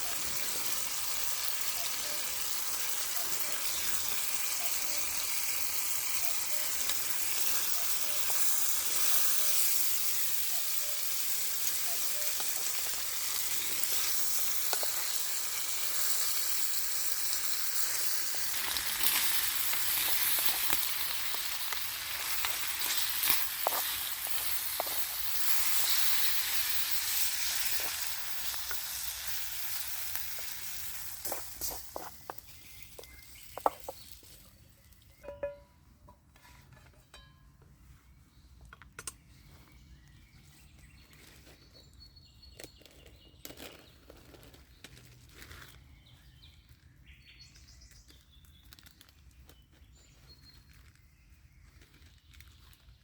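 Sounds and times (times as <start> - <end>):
campfire crackles and pops: 0.0 - 34.4
food sizzling over a fire: 0.0 - 35.6.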